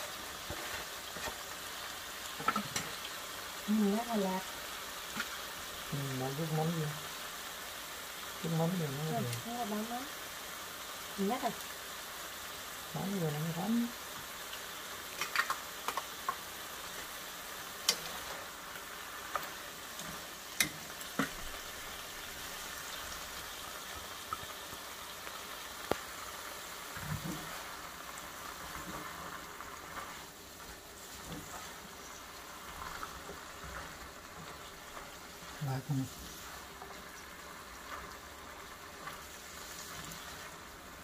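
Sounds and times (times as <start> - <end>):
food sizzling in a pan: 0.0 - 41.0.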